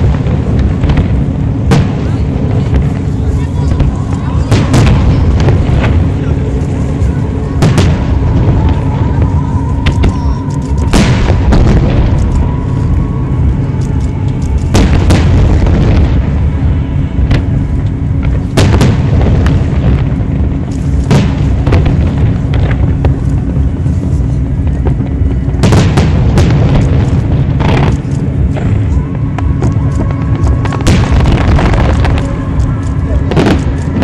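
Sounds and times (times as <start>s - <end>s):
continuous low rumble: 0.0s - 34.0s
fireworks booming: 0.0s - 34.0s.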